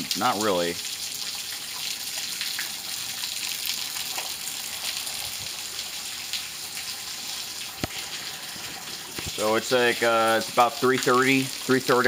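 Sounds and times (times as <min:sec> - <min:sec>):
rain falling steadily: 0:00.0 - 0:12.0.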